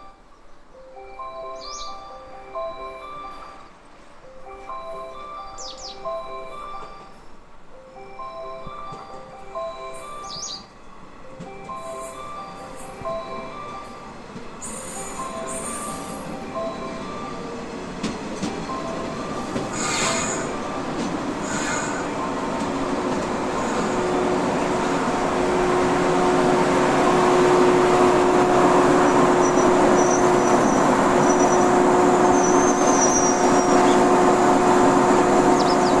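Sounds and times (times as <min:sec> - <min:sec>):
electric train running: 0:06.2 - 0:36.0
brake squeal: 0:19.7 - 0:20.6.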